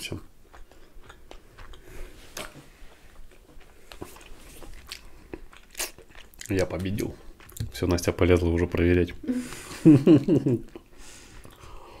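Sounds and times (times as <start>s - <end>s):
wet chewing clicks and smacks: 0.3s - 8.8s.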